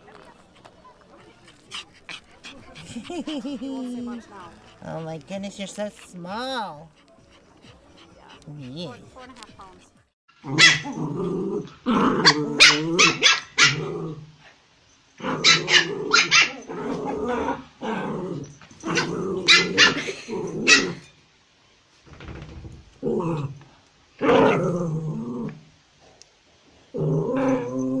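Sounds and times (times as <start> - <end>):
puppy growling: 0.6 - 14.3
puppy barking: 10.5 - 11.0, 12.2 - 13.8, 15.4 - 16.6, 18.9 - 21.0.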